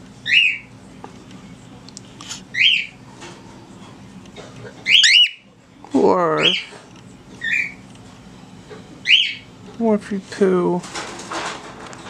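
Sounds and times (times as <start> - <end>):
bird chirping: 4.9 - 5.5, 9.0 - 9.5.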